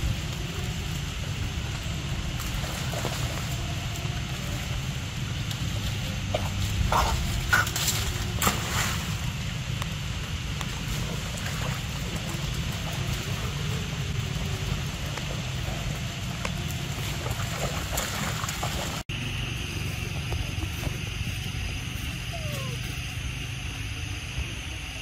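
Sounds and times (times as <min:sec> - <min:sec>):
faint water splashes: 0:00.0 - 0:19.0
steady rain falling: 0:00.0 - 0:19.0
wind rumble on microphone: 0:00.0 - 0:25.0.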